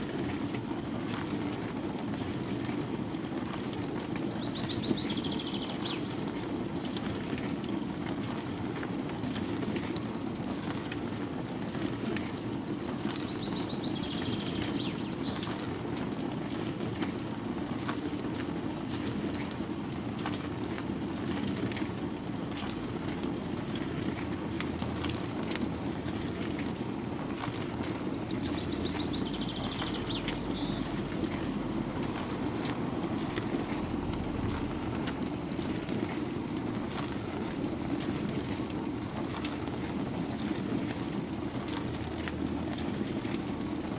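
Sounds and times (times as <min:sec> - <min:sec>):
water sloshing in drum: 0:00.0 - 0:43.9
washing machine tumbling: 0:13.0 - 0:43.9.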